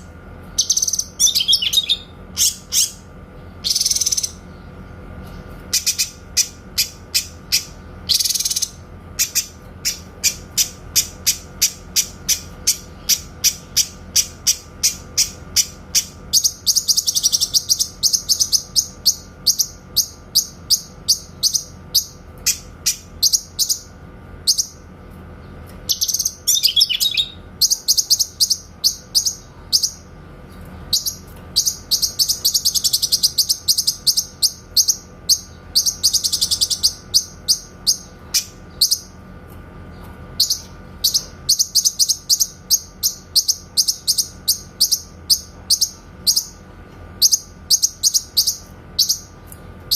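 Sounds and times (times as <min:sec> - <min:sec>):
bird rapid high chirps: 0:00.0 - 0:04.8, 0:05.7 - 0:24.9, 0:25.9 - 0:30.2, 0:30.8 - 0:39.2, 0:40.4 - 0:46.6, 0:47.2 - 0:49.9.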